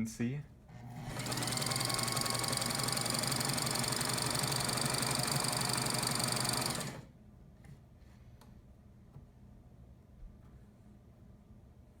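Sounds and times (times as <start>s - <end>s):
sewing machine stitching: 0.7s - 7.1s.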